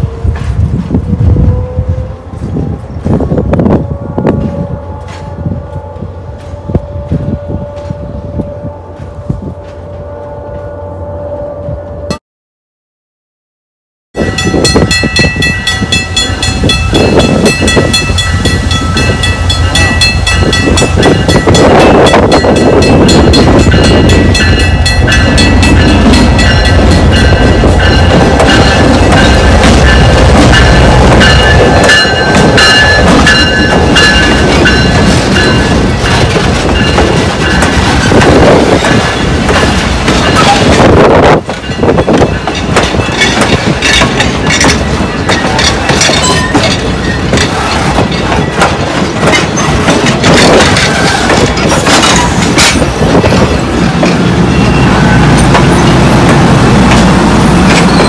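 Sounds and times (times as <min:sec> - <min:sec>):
diesel locomotive rumbling: 0:00.0 - 0:12.2, 0:14.2 - 0:58.0
bell ringing: 0:14.2 - 0:37.8, 0:44.4 - 0:47.3
passenger coaches rolling: 0:14.2 - 0:58.0.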